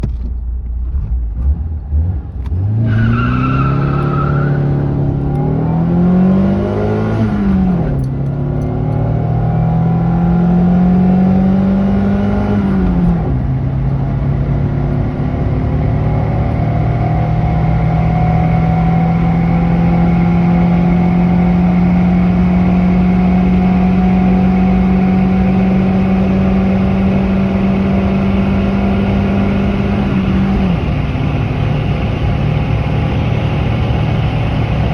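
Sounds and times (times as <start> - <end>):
car engine accelerating: 0.6 - 34.9
high whine: 24.4 - 34.9.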